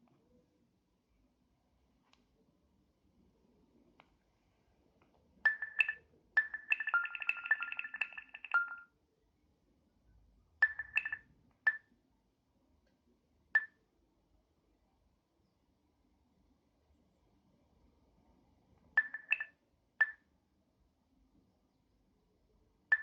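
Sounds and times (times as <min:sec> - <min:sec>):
phone notification chimes: 0:05.5 - 0:08.8, 0:10.6 - 0:11.8, 0:19.0 - 0:19.5.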